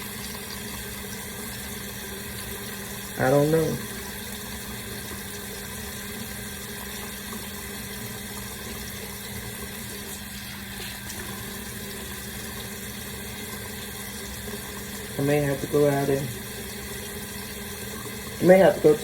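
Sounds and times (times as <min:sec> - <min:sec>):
water running from a tap: 0:00.0 - 0:19.0.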